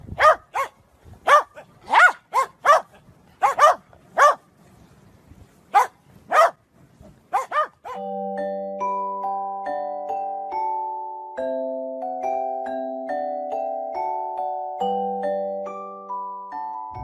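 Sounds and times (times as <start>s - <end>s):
dog barking: 0.2s - 4.4s, 5.7s - 6.6s, 7.3s - 8.0s
music with bell-like mallet notes: 8.0s - 17.0s.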